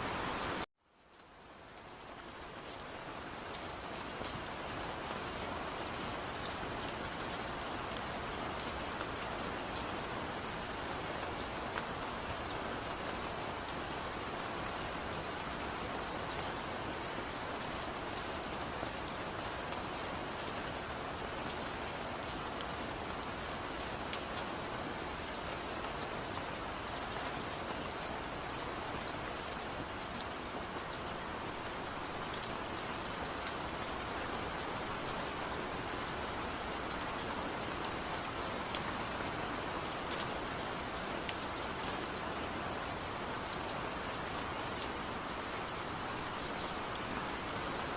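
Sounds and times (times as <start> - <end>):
steady rainfall: 0.0 - 47.9.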